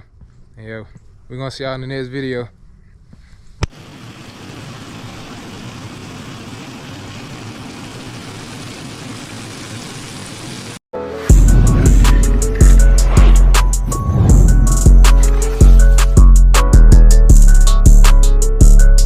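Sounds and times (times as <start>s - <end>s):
steady rushing noise: 11.3s - 16.3s.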